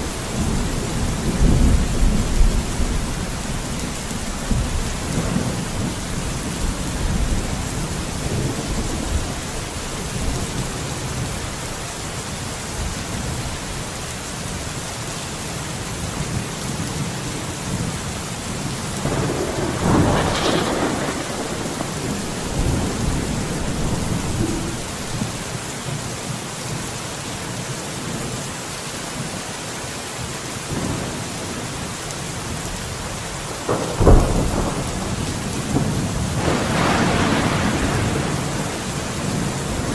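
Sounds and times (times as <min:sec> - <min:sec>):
low rolling thunder: 0:00.0 - 0:11.4, 0:16.3 - 0:25.6, 0:32.6 - 0:39.9
heavy rain: 0:00.0 - 0:39.9
sharp thunderclap: 0:19.0 - 0:25.5, 0:33.6 - 0:39.9.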